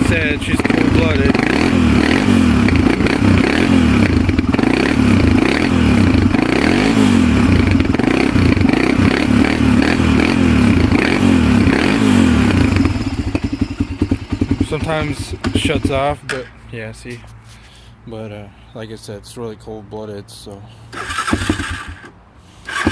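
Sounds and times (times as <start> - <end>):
atv engine running unevenly: 0.0 - 16.2, 22.7 - 22.9.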